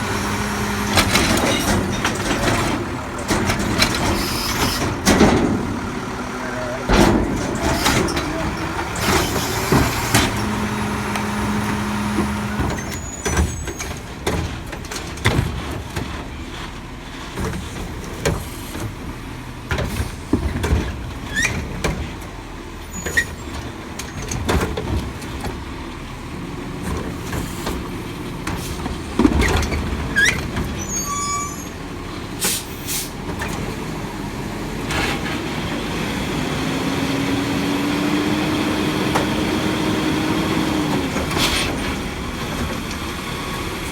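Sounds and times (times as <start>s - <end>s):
garbage truck engine: 0.0s - 43.9s
metal bins clanking: 0.1s - 16.3s.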